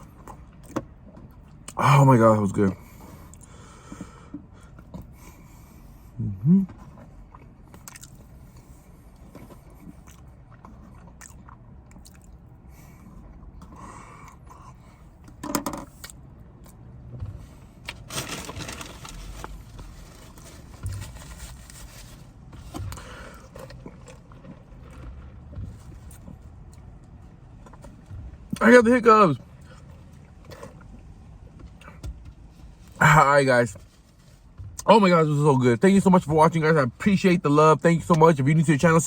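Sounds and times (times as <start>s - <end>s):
chewing and crunching food: 6.7s - 28.6s.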